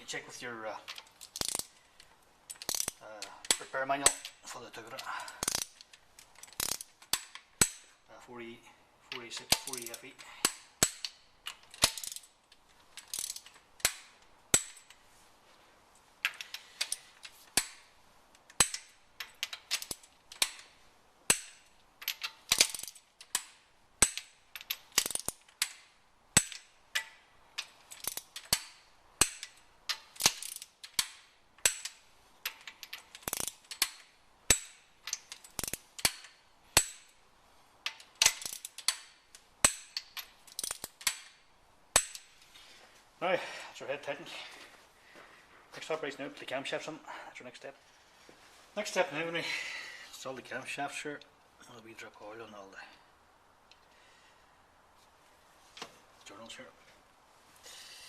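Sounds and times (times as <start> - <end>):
torque wrench ratchet clicking: 0.9 - 1.7, 2.5 - 4.4, 5.3 - 7.8, 11.8 - 12.3, 13.0 - 14.9, 21.3 - 25.8, 27.9 - 32.0, 32.9 - 37.0, 38.2 - 41.3.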